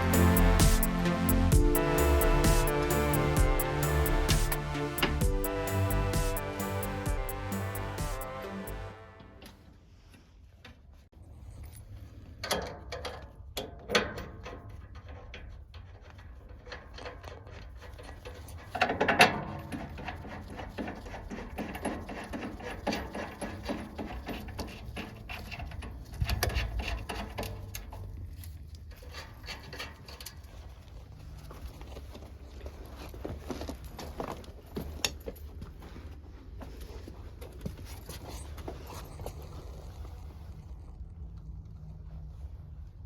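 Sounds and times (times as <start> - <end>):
low steady hum: 0.0 - 9.7.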